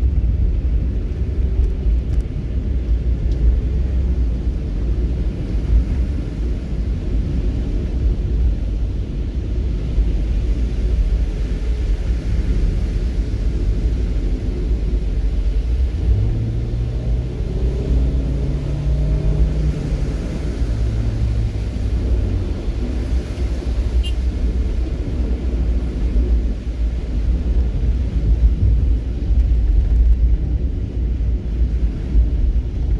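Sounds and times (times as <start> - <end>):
low rumble of moving vehicle: 0.0 - 32.9.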